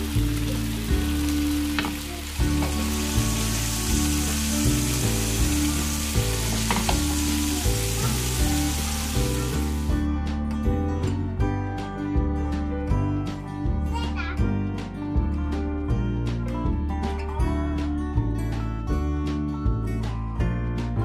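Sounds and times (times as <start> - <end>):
meat sizzling in oil with pops: 0.0 - 9.9
background music: 0.0 - 21.0.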